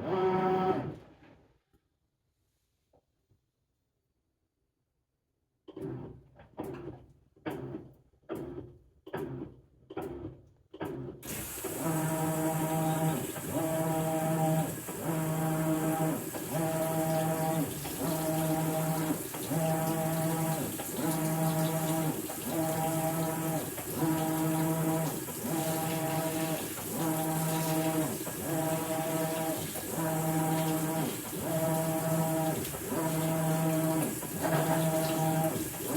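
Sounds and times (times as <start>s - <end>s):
washing machine drive strokes: 11.2s - 35.9s
motor humming back and forth: 11.3s - 35.9s
water rushing in: 11.3s - 35.9s.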